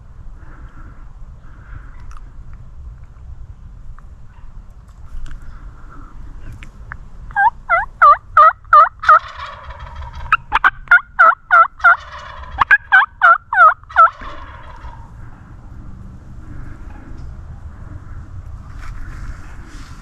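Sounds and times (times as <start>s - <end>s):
turkey yelping: 7.3s - 15.1s
turkey clucking: 7.3s - 15.2s.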